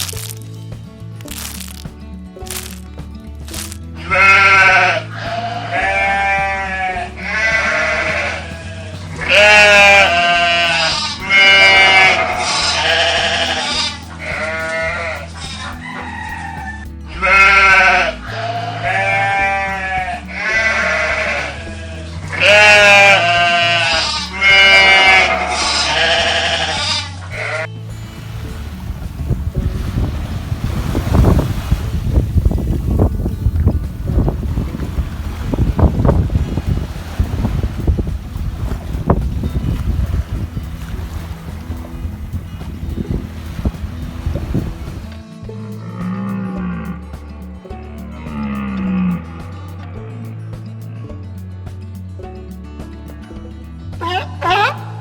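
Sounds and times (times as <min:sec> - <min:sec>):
background music with bass line: 0:00.0 - 0:55.0
wavering bleat-like calls: 0:04.0 - 0:27.7, 0:48.2 - 0:50.0, 0:54.0 - 0:55.0.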